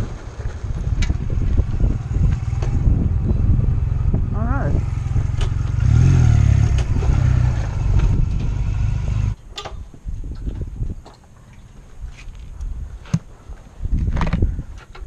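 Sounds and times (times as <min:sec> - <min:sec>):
motorcycle engine running: 0:00.0 - 0:09.4
wind noise on microphone: 0:00.0 - 0:15.0.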